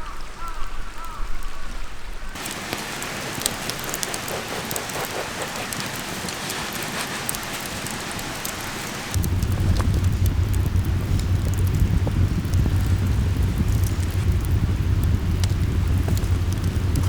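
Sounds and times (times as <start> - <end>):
food sizzling in a frying pan: 2.4 - 17.0
low rumble: 9.1 - 17.0.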